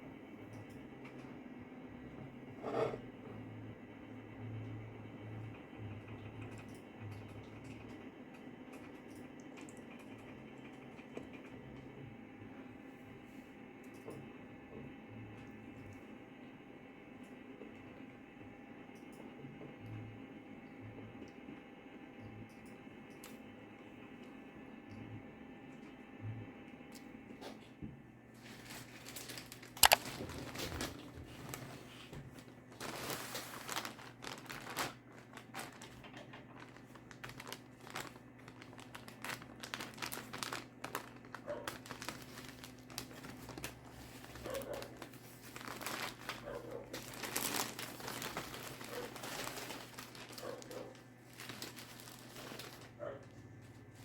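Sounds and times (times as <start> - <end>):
plastic packaging crinkling: 28.4 - 31.7, 32.4 - 53.2.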